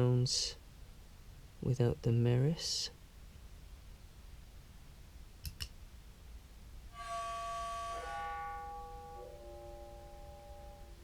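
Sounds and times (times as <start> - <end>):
low sustained clarinet notes: 6.9 - 11.0.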